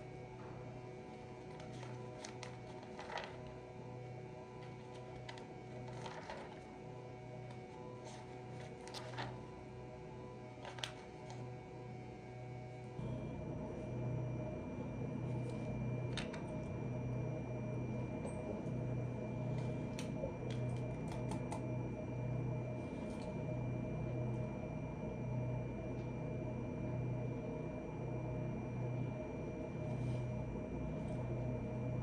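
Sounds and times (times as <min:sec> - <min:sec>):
faint high whine: 0:00.0 - 0:32.0
steady low hum: 0:00.0 - 0:32.0.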